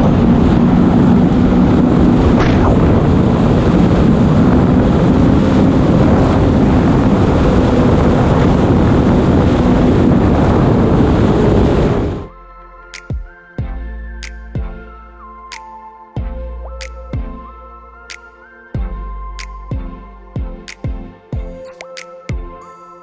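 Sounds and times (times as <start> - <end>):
wind buffeting microphone: 0.0 - 12.3.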